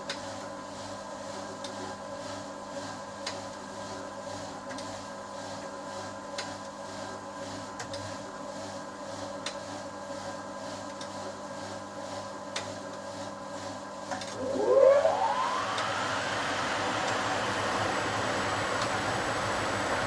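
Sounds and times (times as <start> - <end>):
washing machine spin whine: 13.2 - 20.0
washing machine running: 14.2 - 20.0.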